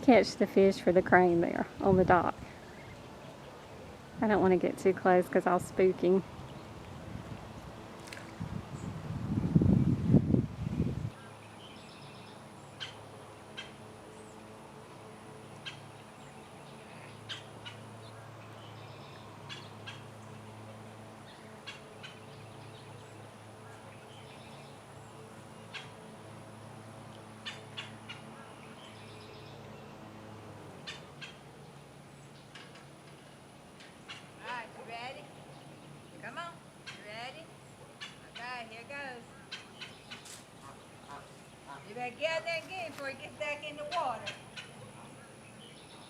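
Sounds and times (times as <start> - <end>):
birds chirping: 0.0 - 46.0
steady low hum: 0.0 - 46.0.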